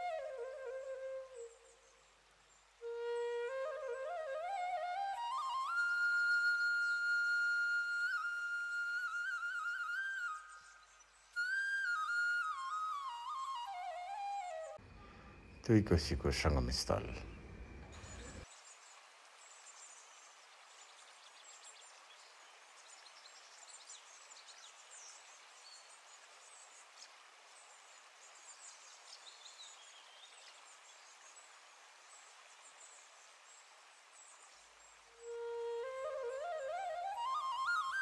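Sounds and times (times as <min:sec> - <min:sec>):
steady soft hiss: 0:00.0 - 0:38.0
small birds chirping: 0:14.8 - 0:35.0.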